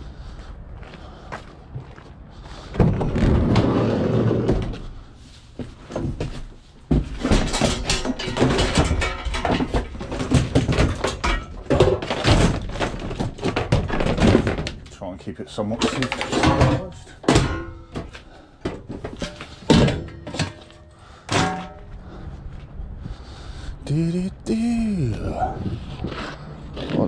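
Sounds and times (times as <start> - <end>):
metal knocks and clanks: 6.0 - 14.9, 15.8 - 21.9
scrap metal scraping and thudding: 7.0 - 14.7, 15.8 - 22.0.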